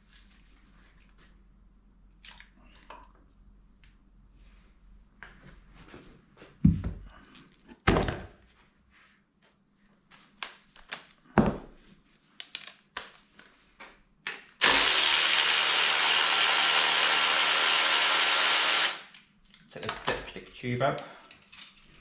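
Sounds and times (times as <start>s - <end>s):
loud steady air hiss: 14.6s - 19.1s.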